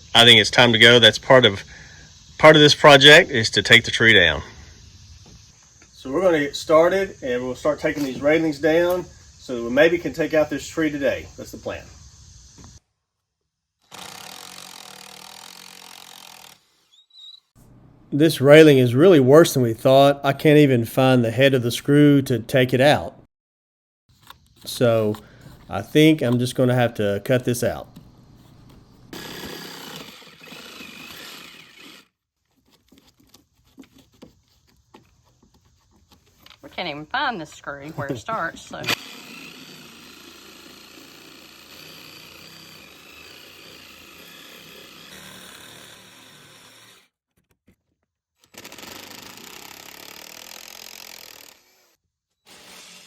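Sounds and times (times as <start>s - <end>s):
power saw cutting wood: 13.9s - 16.9s, 29.1s - 32.2s, 38.0s - 47.1s, 48.5s - 53.0s.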